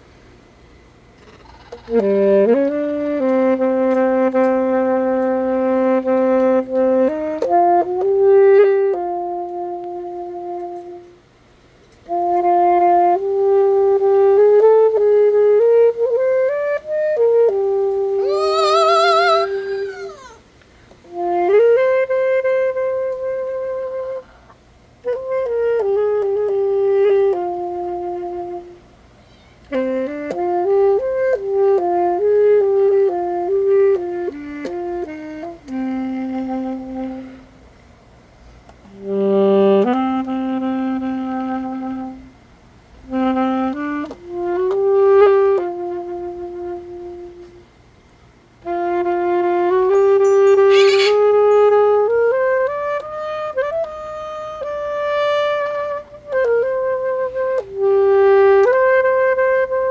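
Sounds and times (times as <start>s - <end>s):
alto saxophone melody: 1.8s - 11.2s, 12.1s - 29.0s, 29.6s - 37.8s, 38.9s - 47.8s, 48.6s - 59.9s
wavering high sound with vibrato: 18.2s - 20.4s.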